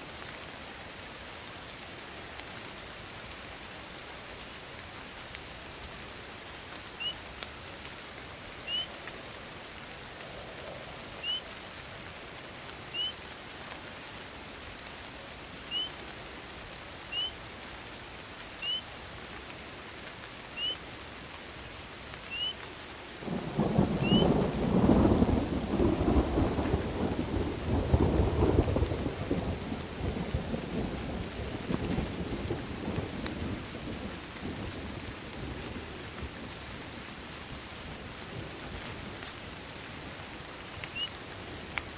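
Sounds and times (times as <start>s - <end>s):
steady rain hiss: 0.0s - 41.9s
rolling thunder: 23.2s - 37.0s.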